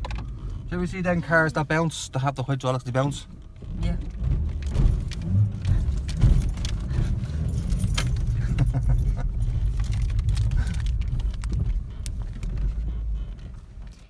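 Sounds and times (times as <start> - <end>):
car rumbling: 0.0 - 14.0
metallic clinks and rattles: 4.6 - 12.2.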